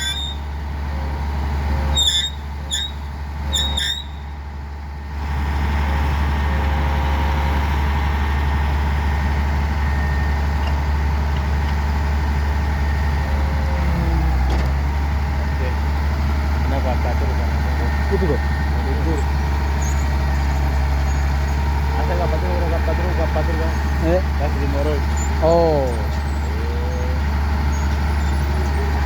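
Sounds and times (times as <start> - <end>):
short high squeaks: 0.0 - 0.5, 1.9 - 4.3, 19.5 - 21.6, 25.0 - 29.0.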